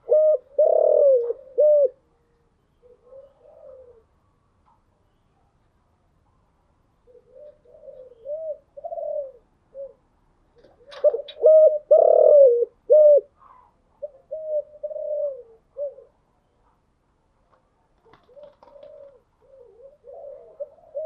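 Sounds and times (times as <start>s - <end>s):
dove cooing: 0.0s - 4.2s, 7.0s - 16.3s, 18.0s - 21.0s.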